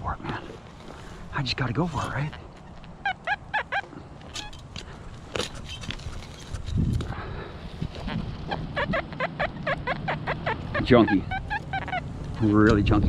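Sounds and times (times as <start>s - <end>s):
dirt scraping: 0.1s - 3.0s, 4.0s - 8.7s.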